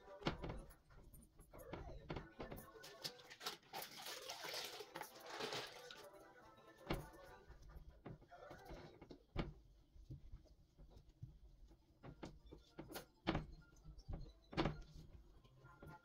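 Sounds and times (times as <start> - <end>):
light knocks and clicks of objects: 6.8 - 16.0.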